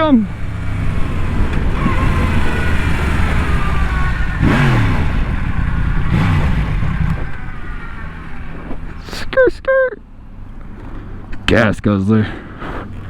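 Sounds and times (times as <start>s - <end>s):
motorcycle engine running hard: 0.0s - 11.3s.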